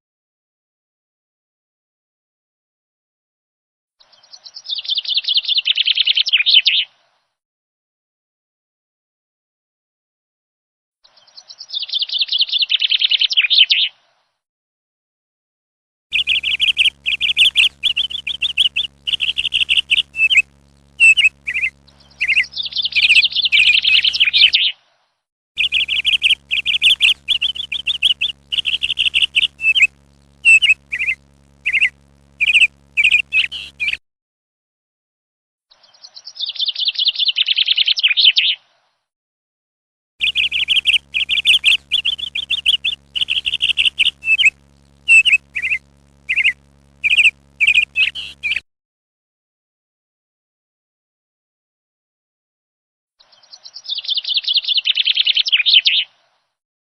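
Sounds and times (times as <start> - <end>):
small birds chirping: 16.1 - 24.8, 25.6 - 34.0, 40.2 - 48.6.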